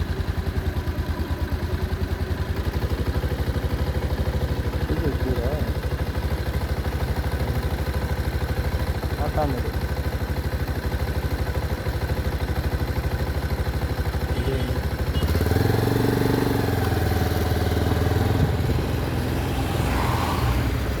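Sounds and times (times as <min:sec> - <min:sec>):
vehicle engine idling: 0:00.0 - 0:19.8
vehicle engine revving: 0:14.4 - 0:21.0.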